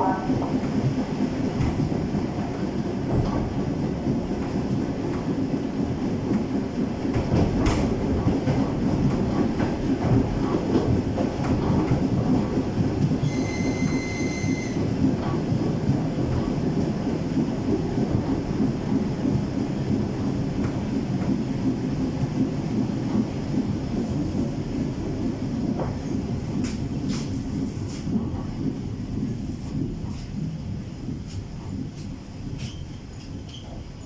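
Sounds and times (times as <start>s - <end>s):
train wheels rumbling on rails: 0.0s - 34.0s
rail-joint clicks: 0.1s - 16.6s, 25.6s - 34.0s.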